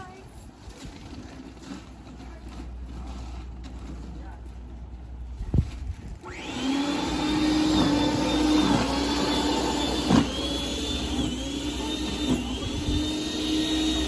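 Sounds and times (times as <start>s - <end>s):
snowblower motor whining: 6.2s - 14.0s.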